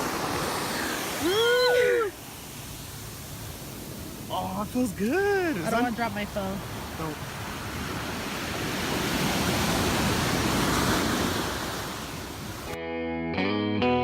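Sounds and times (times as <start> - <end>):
ocean surf washing in: 0.0 - 12.8
guitar background music: 12.7 - 14.0.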